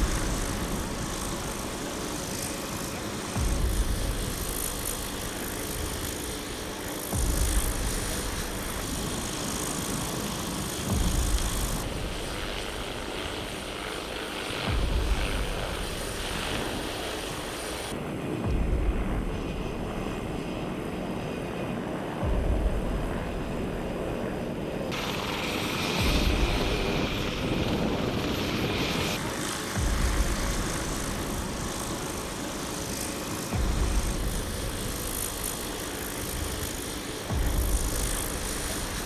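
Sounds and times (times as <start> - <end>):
helicopter rotor and engine: 0.0 - 39.0
deep bass thump of music: 7.2 - 8.1, 18.5 - 19.7, 33.6 - 34.4.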